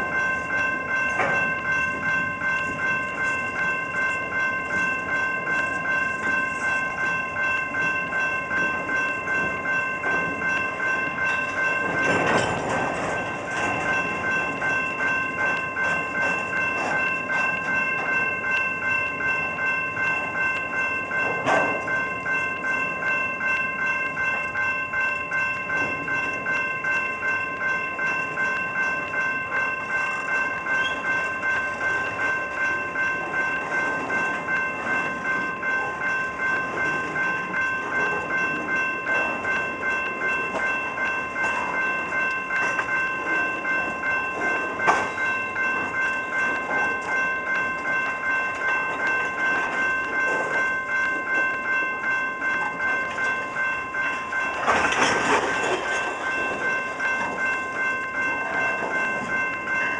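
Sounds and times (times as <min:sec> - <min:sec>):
high ringing tone: 0:00.0 - 0:59.9
train wheels clicking over rail joints: 0:08.5 - 0:19.0, 0:54.4 - 0:57.5.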